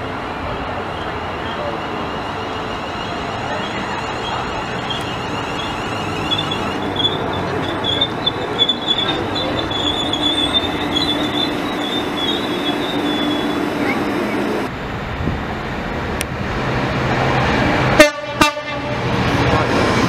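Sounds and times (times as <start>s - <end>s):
train rumbling: 0.0s - 20.0s
wheel and brake squeal: 0.9s - 13.6s.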